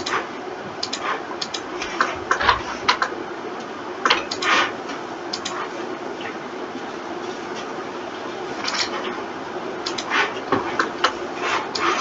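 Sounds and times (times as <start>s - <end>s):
steady background hum: 0.0s - 12.0s
keyboard and mouse clicking: 0.8s - 3.1s, 5.3s - 5.6s, 9.8s - 10.1s.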